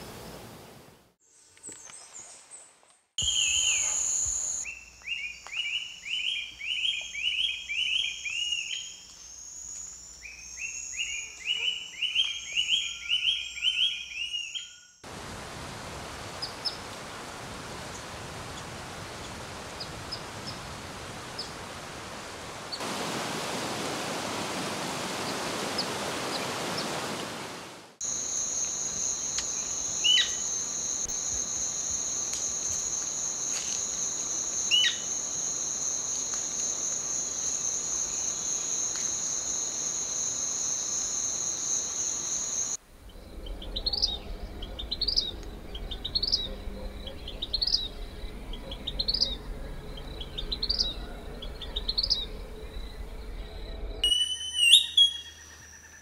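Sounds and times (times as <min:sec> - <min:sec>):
whistled bird call: 0:03.2 - 0:04.7, 0:54.0 - 0:56.0
high insect drone: 0:03.2 - 0:12.9, 0:28.0 - 0:56.0
rushing river water: 0:15.1 - 0:28.0
bird rising chirp: 0:43.0 - 0:56.0.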